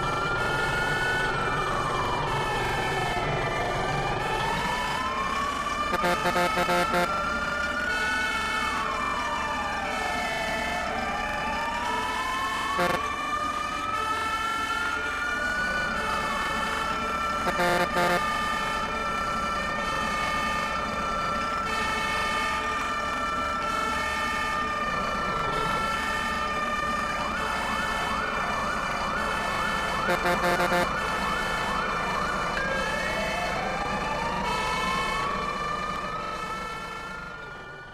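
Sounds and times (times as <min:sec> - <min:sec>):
fire truck siren wailing: 0:00.0 - 0:37.9
pulsing low-tone horn blasts: 0:05.9 - 0:07.2, 0:12.8 - 0:13.1, 0:17.4 - 0:18.5, 0:30.0 - 0:31.2.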